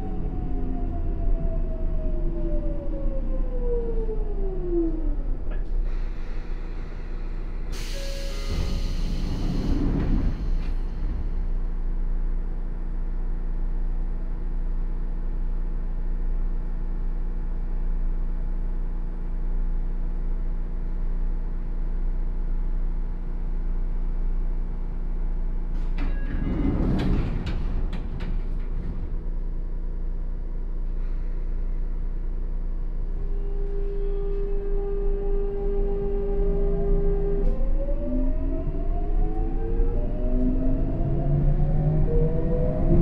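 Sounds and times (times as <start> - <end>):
wheels rumbling on rail: 0.0 - 43.0
loud rattling and clatter: 26.0 - 29.5.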